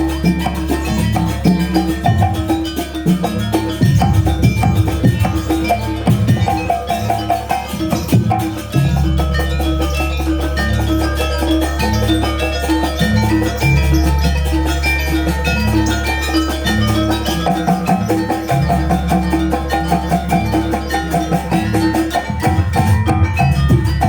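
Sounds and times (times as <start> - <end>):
deep sustained bass: 0.0 - 24.0
drum strokes: 0.0 - 24.0.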